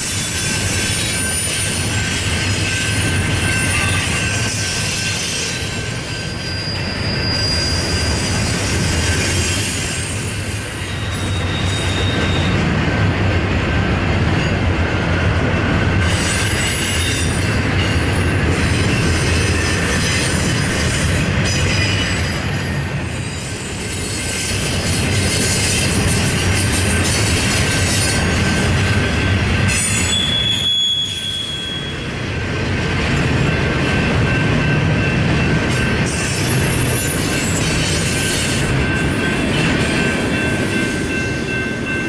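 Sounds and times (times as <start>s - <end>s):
high-pitched wheel squeals: 0.0s - 12.6s, 28.0s - 32.1s
train wheels rumbling on rail: 0.0s - 42.0s.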